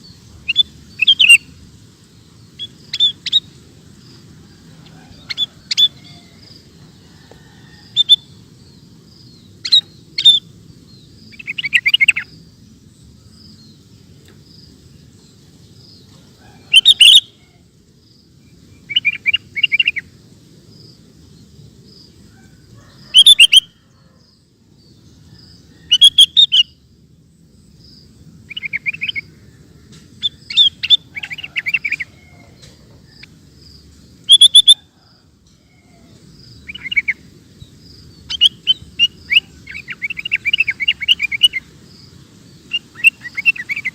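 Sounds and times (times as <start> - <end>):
bulbul chirpy calls: 0.0 - 6.9, 7.7 - 12.6, 15.7 - 17.7, 18.6 - 20.2, 22.4 - 23.8, 25.3 - 26.9, 28.4 - 35.1, 35.8 - 43.9.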